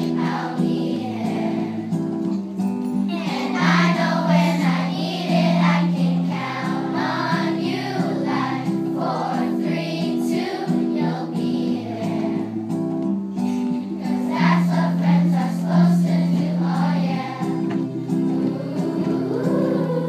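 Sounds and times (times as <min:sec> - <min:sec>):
group singing in chorus: 0:00.0 - 0:01.9, 0:03.1 - 0:12.5, 0:14.0 - 0:20.0
instrumental accompaniment: 0:00.0 - 0:20.0.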